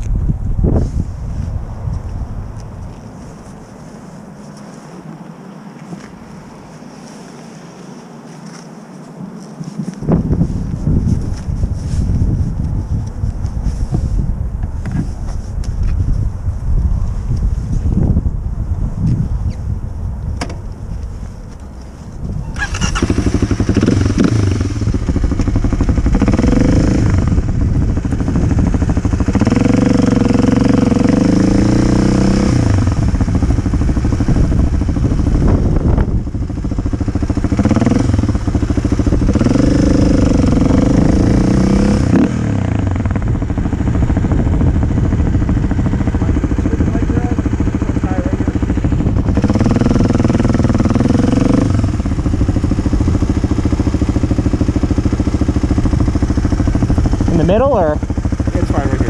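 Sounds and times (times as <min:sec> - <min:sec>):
wind noise: 0:00.0 - 0:59.0
dirt bike engine revving: 0:22.6 - 0:59.0.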